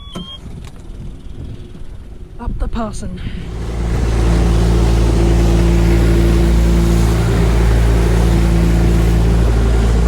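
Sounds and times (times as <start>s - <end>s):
outboard motor droning: 3.4s - 10.0s
steady rushing noise: 3.4s - 10.0s.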